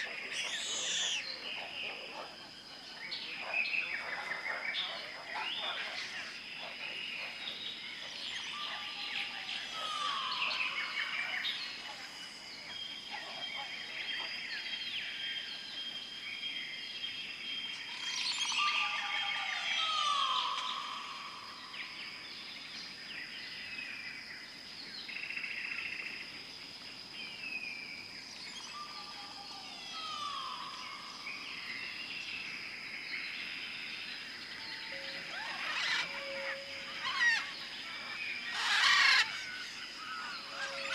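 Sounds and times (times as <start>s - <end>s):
birds chirping and singing: 0.0s - 15.2s, 33.2s - 40.9s.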